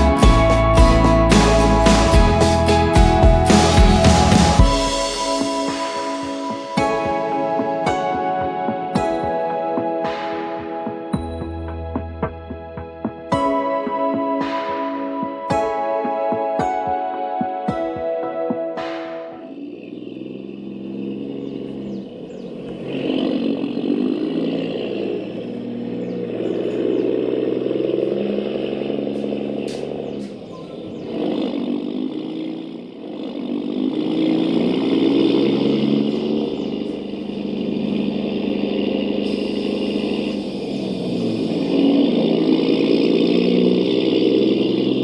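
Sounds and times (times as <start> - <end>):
model truck motor whirring: 19.5 - 45.0.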